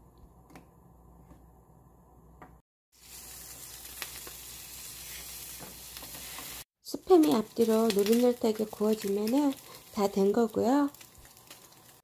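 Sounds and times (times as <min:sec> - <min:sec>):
meat sizzling in a pan: 0:03.0 - 0:12.0.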